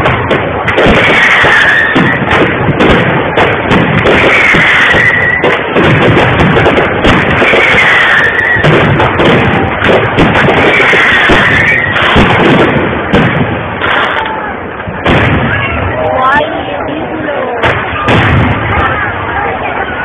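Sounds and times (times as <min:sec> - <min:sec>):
fireworks exploding and crackling: 0:00.0 - 0:20.0
high firework whistle: 0:00.7 - 0:02.4, 0:04.0 - 0:05.7, 0:07.2 - 0:09.0, 0:10.4 - 0:12.4.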